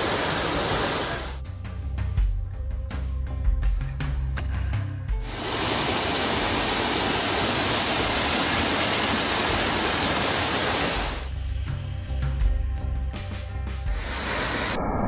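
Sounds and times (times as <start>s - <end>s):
waterfall rushing: 0.0s - 1.4s, 5.2s - 11.3s
background music: 1.4s - 6.0s, 11.3s - 14.8s.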